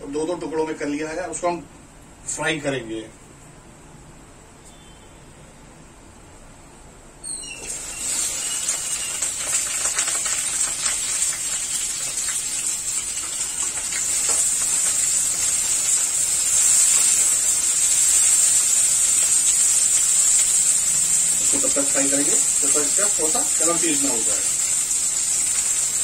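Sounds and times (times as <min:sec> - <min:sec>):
okra sizzling in hot oil: 0:07.3 - 0:26.0.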